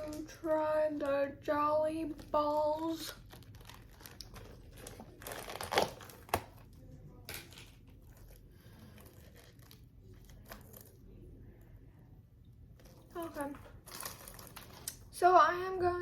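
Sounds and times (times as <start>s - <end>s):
candy packaging crinkling: 1.8s - 11.2s, 12.8s - 15.2s.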